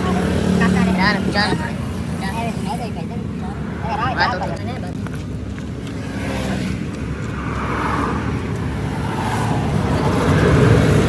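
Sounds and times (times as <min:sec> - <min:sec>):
vehicle engine and tyres approaching: 0:00.0 - 0:11.0.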